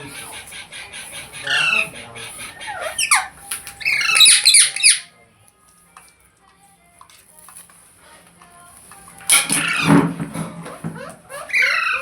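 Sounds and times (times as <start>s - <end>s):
parrot screeching: 0.3s - 5.1s, 9.4s - 10.1s, 11.0s - 12.0s.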